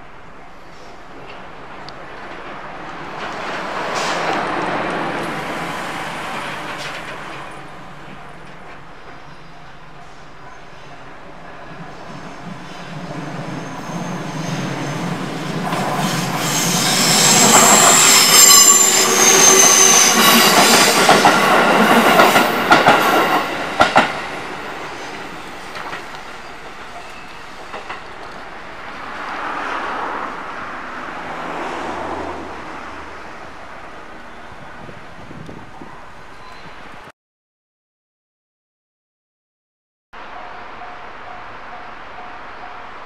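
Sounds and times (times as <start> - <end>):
electric train passing: 0.0 - 36.9, 40.2 - 43.0
wheels clacking over rail joints: 1.2 - 9.2, 12.0 - 29.9
wheel squeal: 12.2 - 22.5.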